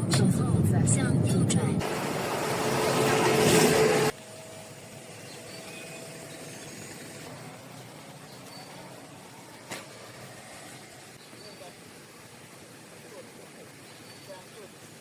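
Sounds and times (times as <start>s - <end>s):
loud road vehicle rush: 0.0s - 11.2s
faint vehicle hum: 0.0s - 15.0s.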